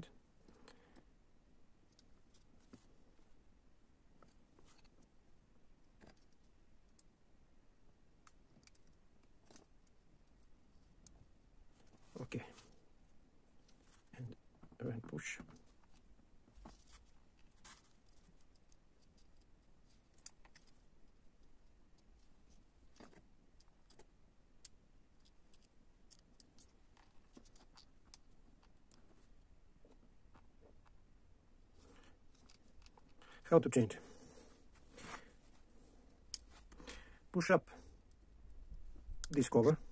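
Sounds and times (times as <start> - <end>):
small clicks of plastic handling: 8.2 - 11.2, 15.4 - 22.2, 22.9 - 31.0, 31.8 - 33.4.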